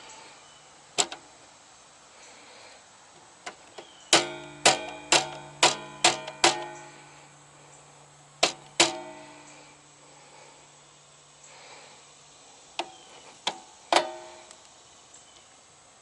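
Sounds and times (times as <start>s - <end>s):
sharp metallic switch clicks: 3.5s - 7.0s.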